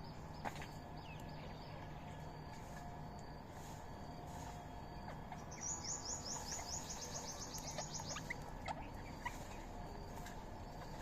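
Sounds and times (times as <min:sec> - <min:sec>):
rapid high bird trill: 0:05.3 - 0:09.8.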